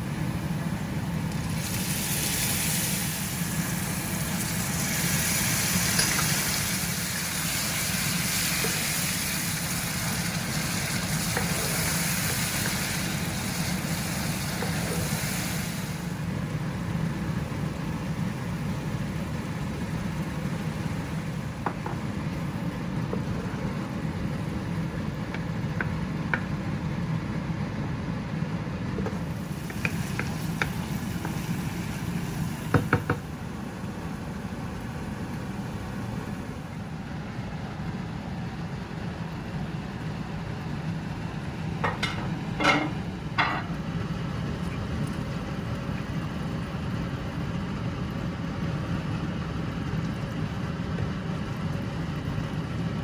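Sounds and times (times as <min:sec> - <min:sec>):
low cooking rumble: 0:00.0 - 0:53.0
utensil clinking against pot: 0:41.8 - 0:43.8.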